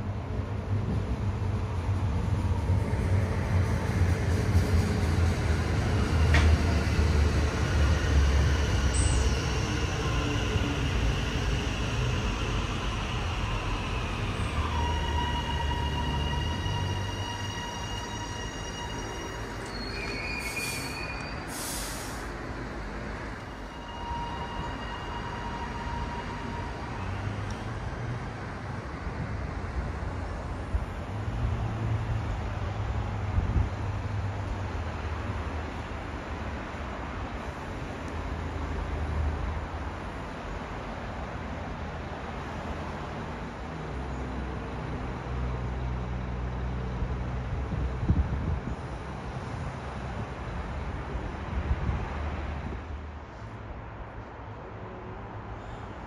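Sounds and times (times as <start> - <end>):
train low rumble: 0.0 - 56.0
air hiss: 20.4 - 22.4.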